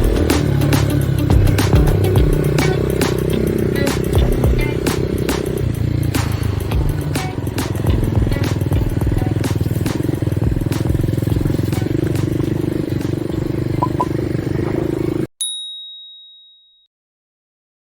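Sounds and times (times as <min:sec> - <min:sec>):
dirt bike engine running: 0:00.0 - 0:15.3
high ringing tone: 0:13.8 - 0:14.3, 0:15.4 - 0:16.9.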